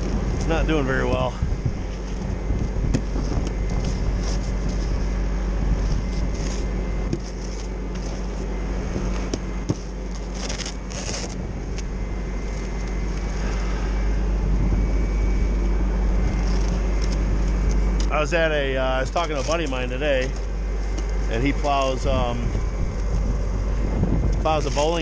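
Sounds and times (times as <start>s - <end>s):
vehicle engine running: 0.0s - 25.0s
clicks and crackles: 16.3s - 18.2s.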